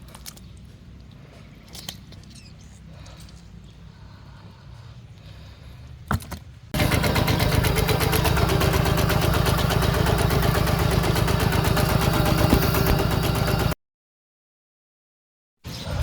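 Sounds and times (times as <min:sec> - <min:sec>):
diesel engine chugging: 0:06.8 - 0:13.8.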